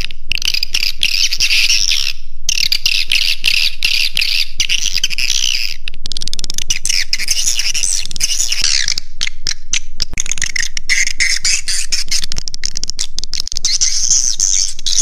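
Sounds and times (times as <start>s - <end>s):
swiftlets twittering and chirping: 0.5s - 15.0s.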